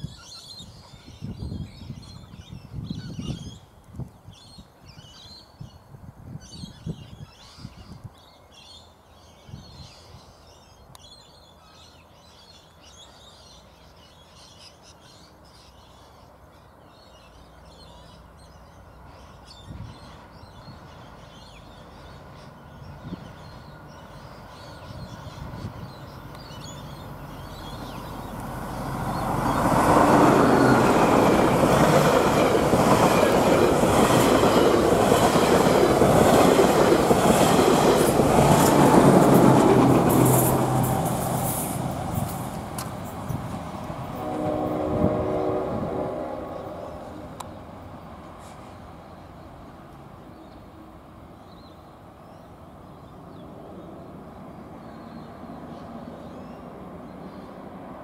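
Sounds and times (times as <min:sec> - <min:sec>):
diesel train engine: 0:20.8 - 0:51.3
train wheels on rails: 0:23.2 - 0:50.2.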